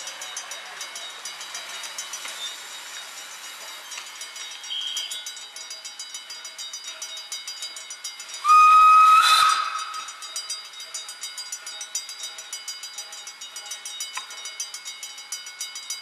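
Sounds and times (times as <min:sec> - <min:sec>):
level-crossing bell ringing: 0:00.0 - 0:08.8, 0:09.6 - 0:16.0
steam locomotive whistle: 0:04.7 - 0:05.1, 0:08.4 - 0:10.2.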